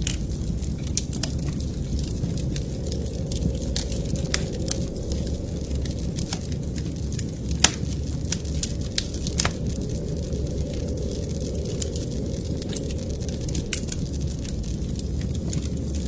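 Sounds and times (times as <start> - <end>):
low fire rumble: 0.0 - 16.0
wood fire crackling and popping: 0.0 - 16.0.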